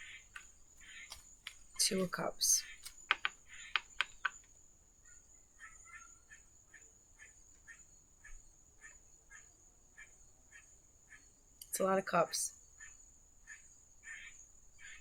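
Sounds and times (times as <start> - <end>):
sharp clicks: 0.2 - 4.5
faint animal chirping: 5.0 - 11.3.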